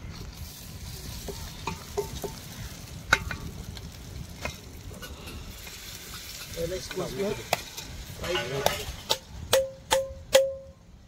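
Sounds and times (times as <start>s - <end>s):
food sizzling in a pot: 0.0s - 9.3s
spoon knocking and scraping pot: 1.2s - 2.4s.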